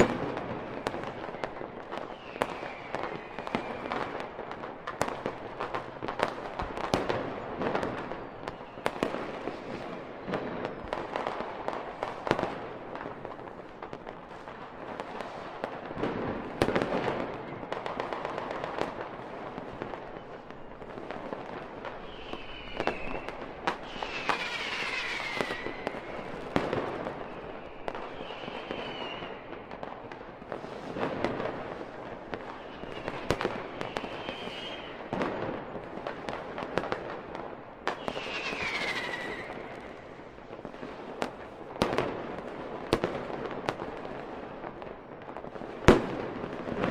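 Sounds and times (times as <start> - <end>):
whistling firework glides: 0.0 - 5.3, 6.1 - 12.6, 16.4 - 35.9, 37.8 - 40.8
firecracker crackle: 0.0 - 46.9
firework bangs: 0.0 - 46.9.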